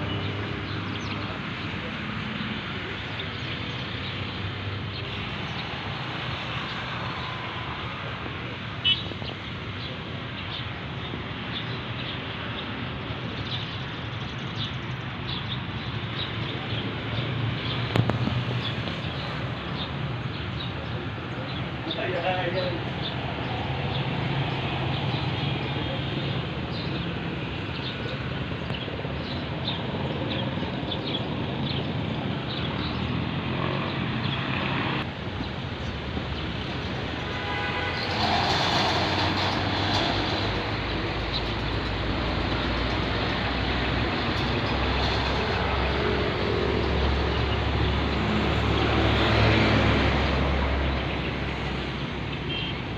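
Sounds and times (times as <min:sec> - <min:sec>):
road and traffic noise: 0:00.0 - 0:52.9
vehicle engine rumbling: 0:14.3 - 0:52.9.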